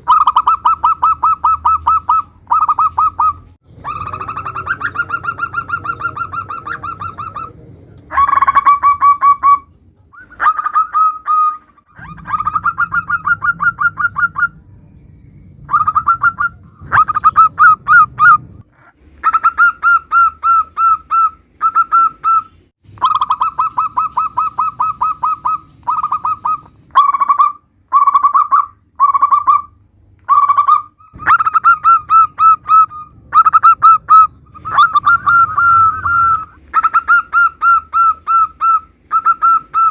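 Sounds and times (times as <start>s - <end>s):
doves cooing in trills: 0.0s - 14.7s, 15.6s - 39.9s.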